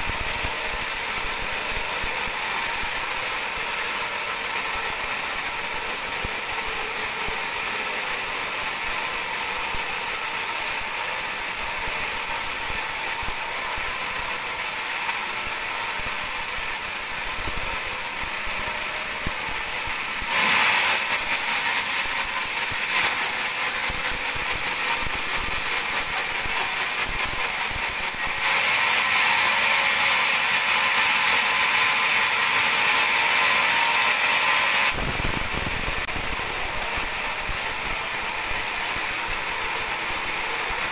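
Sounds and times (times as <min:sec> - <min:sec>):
band saw blade cutting wood: 0:00.0 - 0:40.9.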